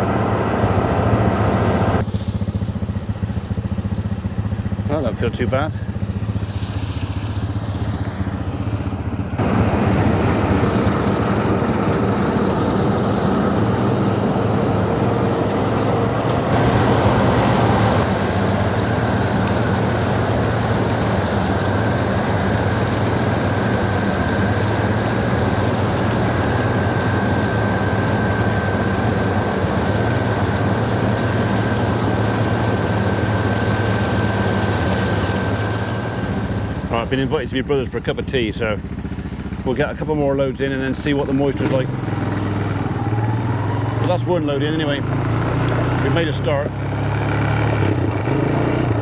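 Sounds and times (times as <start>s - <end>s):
machinery engine running: 0.0s - 49.0s.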